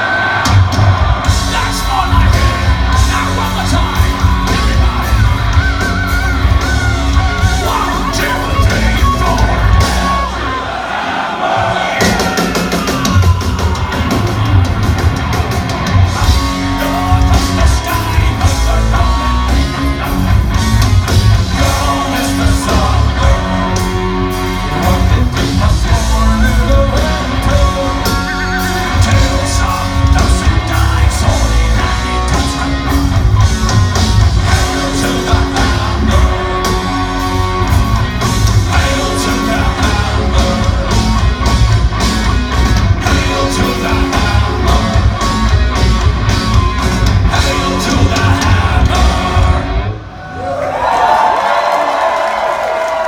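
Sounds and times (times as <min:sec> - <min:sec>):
bass guitar: 0:00.0 - 0:10.7, 0:11.9 - 0:50.2
distorted electric guitars: 0:00.0 - 0:10.8, 0:11.8 - 0:50.2
person singing: 0:16.0 - 0:20.5, 0:21.5 - 0:33.0, 0:34.4 - 0:37.4, 0:38.6 - 0:41.6, 0:42.9 - 0:45.4, 0:47.2 - 0:50.0.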